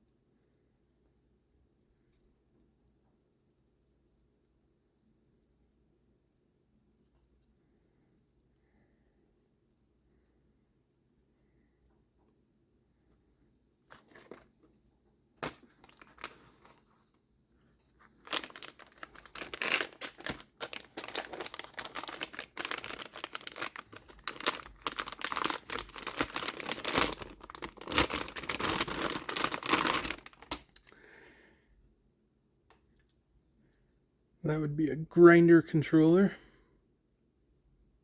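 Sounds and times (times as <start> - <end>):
packaging crinkling and tearing: 13.9 - 14.6, 15.4 - 16.9, 18.1 - 30.9.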